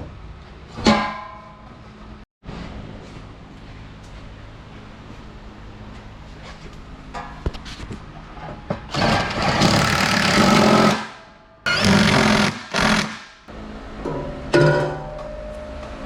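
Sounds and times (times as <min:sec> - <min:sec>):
power tool running rough and rattling: 0:08.9 - 0:11.0, 0:11.7 - 0:13.2.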